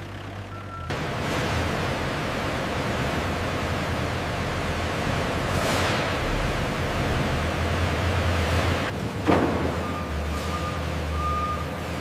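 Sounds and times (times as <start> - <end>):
truck reversing alarm beep: 0.5 - 1.0, 9.6 - 11.8.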